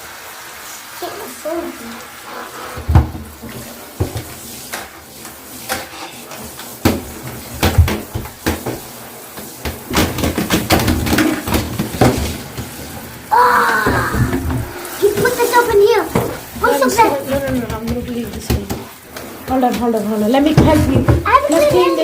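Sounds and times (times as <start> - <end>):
hard objects knocking and clattering: 5.7 - 13.0, 13.8 - 22.0.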